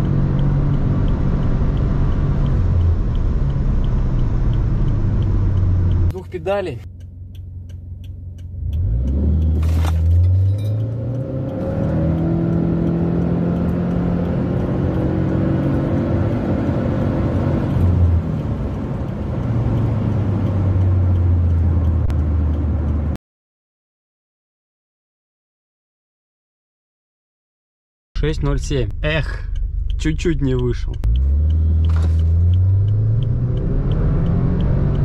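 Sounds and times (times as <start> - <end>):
car engine revving and accelerating: 0.0 - 6.1, 8.4 - 23.2, 28.4 - 35.0.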